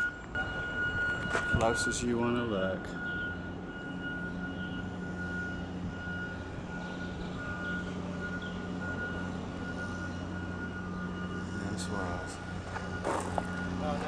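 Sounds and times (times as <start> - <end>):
vehicle engine idling: 1.7 - 14.0.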